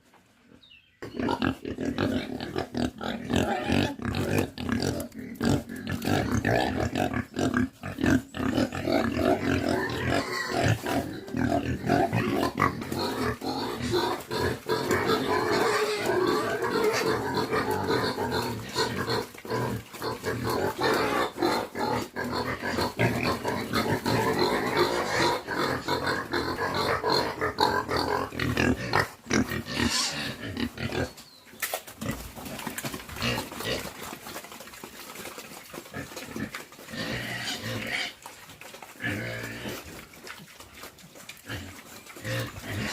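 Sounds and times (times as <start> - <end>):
pigs grunting and squealing: 1.0 - 31.2, 31.8 - 42.9.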